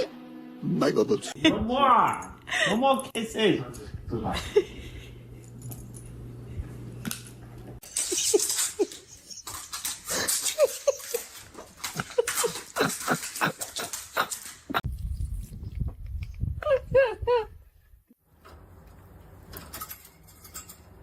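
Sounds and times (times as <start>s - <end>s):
steady low hum: 3.7s - 7.8s.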